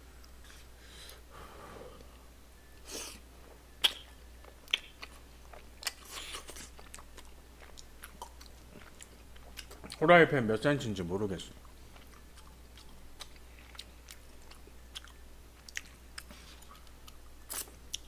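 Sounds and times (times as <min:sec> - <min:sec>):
sharp mouth clicks: 0:03.8 - 0:05.1
wet chewing sounds: 0:03.8 - 0:10.0, 0:11.6 - 0:18.0.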